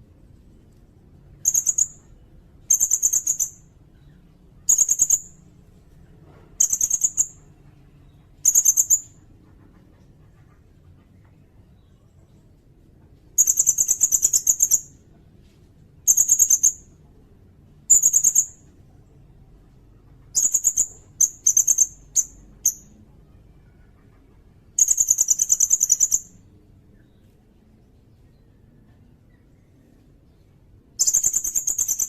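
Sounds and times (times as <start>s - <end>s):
bird trilling: 1.4s - 2.1s, 20.3s - 22.9s, 24.8s - 26.4s, 31.0s - 32.0s.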